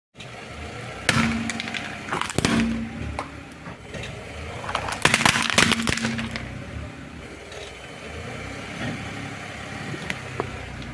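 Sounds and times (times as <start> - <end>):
car tyre crushing brittle objects: 0.9 - 6.7.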